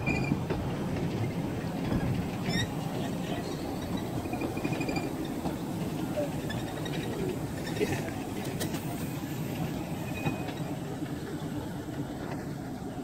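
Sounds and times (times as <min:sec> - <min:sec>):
train wheels rumbling over rails: 0:00.0 - 0:13.0
wheels squeaking: 0:01.8 - 0:08.9.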